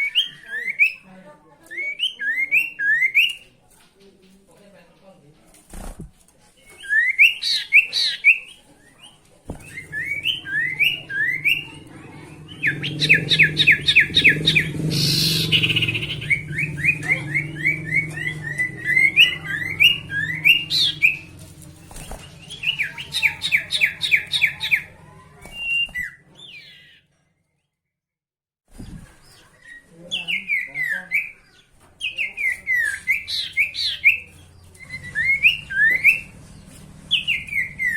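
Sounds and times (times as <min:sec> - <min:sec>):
songbird chirping: 0:06.6 - 0:27.8, 0:28.8 - 0:37.9.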